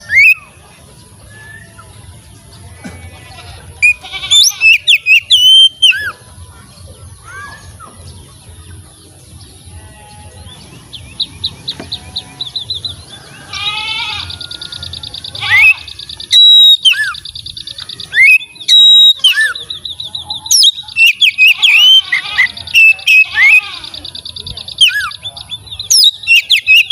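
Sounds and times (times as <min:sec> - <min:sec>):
bird singing whistled notes: 0:00.0 - 0:00.6, 0:03.8 - 0:06.2, 0:10.0 - 0:26.9
bird calls: 0:00.0 - 0:26.9
bird trill: 0:00.0 - 0:26.9.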